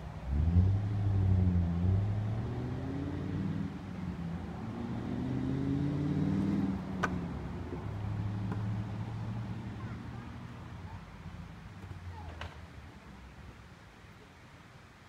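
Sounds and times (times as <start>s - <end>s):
vehicle engine driving past: 0.2s - 10.6s.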